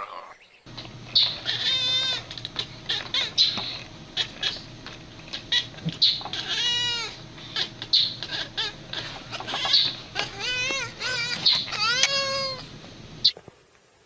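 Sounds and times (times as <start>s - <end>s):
cat meowing: 1.2s - 4.6s, 5.4s - 12.7s.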